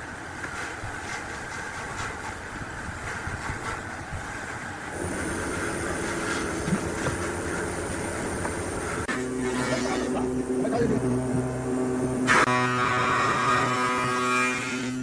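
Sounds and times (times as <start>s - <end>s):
machine rumbling: 0.0s - 14.1s
high steady whine: 4.8s - 13.7s.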